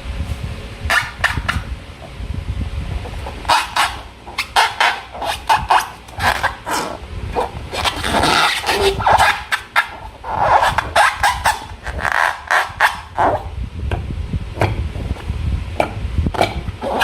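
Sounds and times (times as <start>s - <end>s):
low handling rumble: 0.0s - 11.0s, 13.2s - 16.8s.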